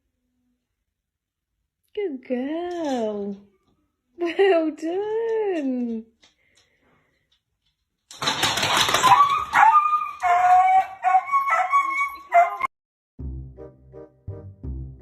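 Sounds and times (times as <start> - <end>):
dog yelping: 8.9 - 12.7.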